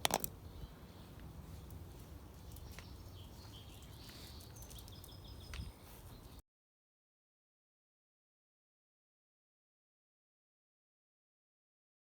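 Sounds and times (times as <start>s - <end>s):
birds chirping: 0.0s - 6.4s.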